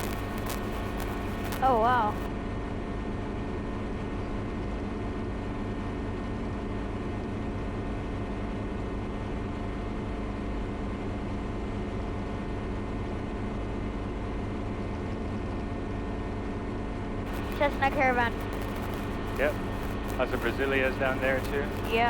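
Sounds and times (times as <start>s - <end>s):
helicopter engine and rotor running: 0.0s - 22.0s.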